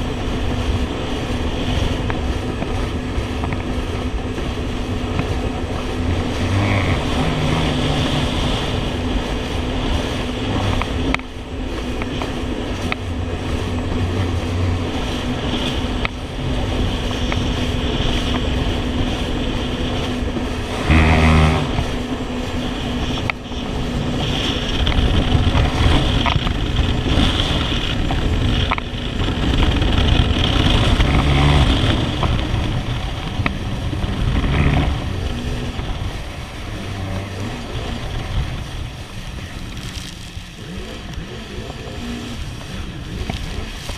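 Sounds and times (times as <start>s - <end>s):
jet ski engine running: 0.0s - 43.9s
water rushing and spraying: 0.0s - 43.9s.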